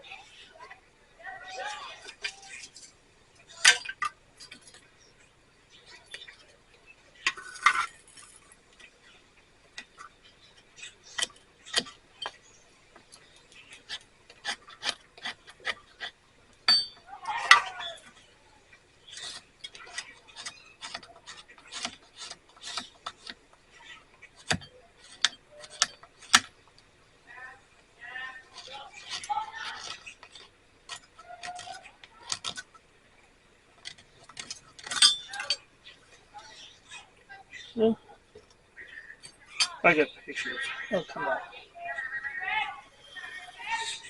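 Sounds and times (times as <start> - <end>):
steel striker scraping flint: 9.8 - 17.0, 19.0 - 26.8, 28.3 - 32.8, 33.8 - 36.1.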